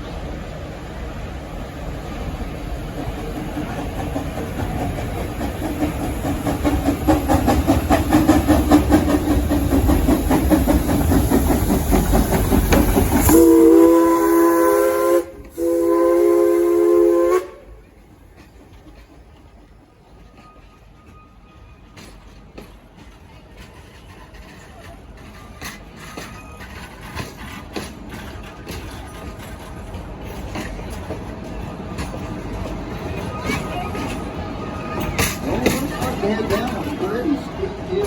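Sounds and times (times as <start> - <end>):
train rumble: 0.0 - 38.0
train wheels clacking on rails: 2.1 - 38.0
locomotive horn blasts: 13.3 - 17.8.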